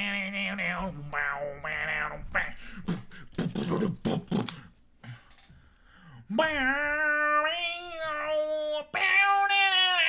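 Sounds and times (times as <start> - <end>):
beatboxed vocal percussion: 0.0 - 4.8.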